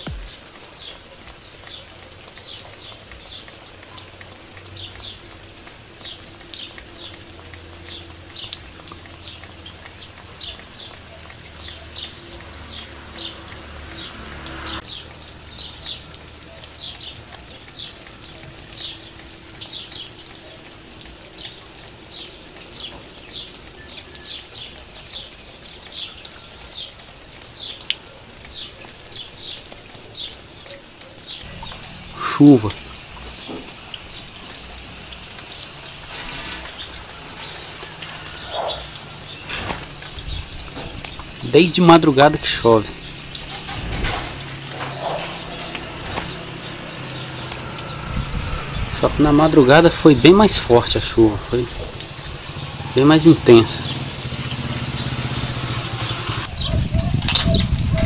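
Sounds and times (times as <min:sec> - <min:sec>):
light rain with raindrops ticking: 0:00.0 - 0:58.0
bird chirping: 0:28.5 - 0:58.0.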